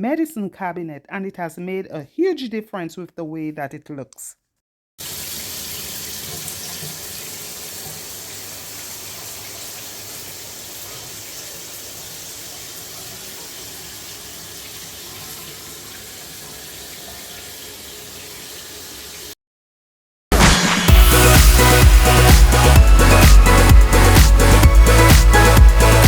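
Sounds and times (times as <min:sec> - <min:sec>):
shower water spraying: 0:05.0 - 0:19.4, 0:20.4 - 0:26.0.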